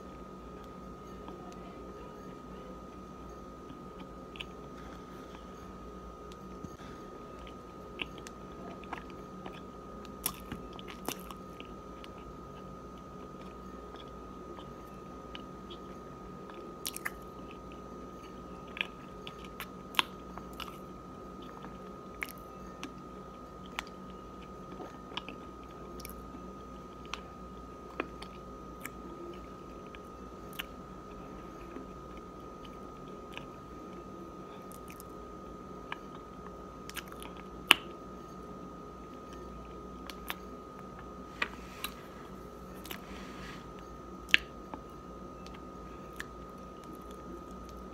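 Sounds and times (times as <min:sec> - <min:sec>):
chewing crunches: 0:03.7 - 0:05.4, 0:07.4 - 0:26.3, 0:34.6 - 0:35.1, 0:35.8 - 0:38.0, 0:39.3 - 0:43.0.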